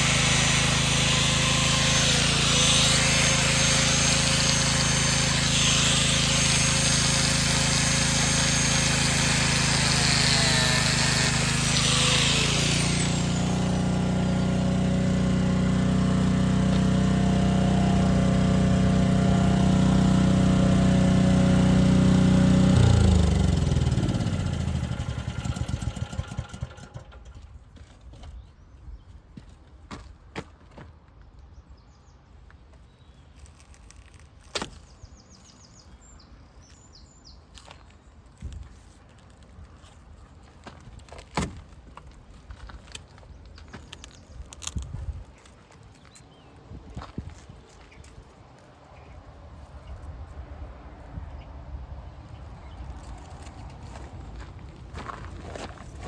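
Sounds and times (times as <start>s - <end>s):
motor drone: 0.0s - 27.2s
power tool cutting metal: 0.0s - 27.3s.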